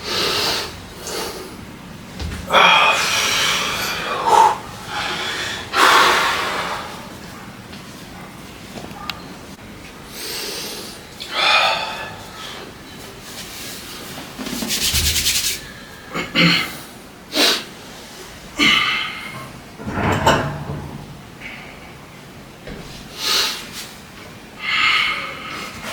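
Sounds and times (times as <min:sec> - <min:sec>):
person breathing hard: 0:02.5 - 0:07.1, 0:24.6 - 0:25.9.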